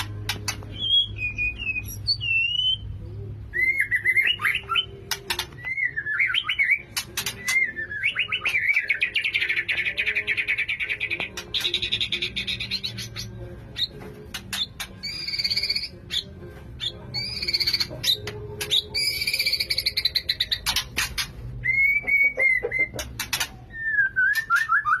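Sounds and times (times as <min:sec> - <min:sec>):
whistled bird notes: 0:21.6 - 0:23.0.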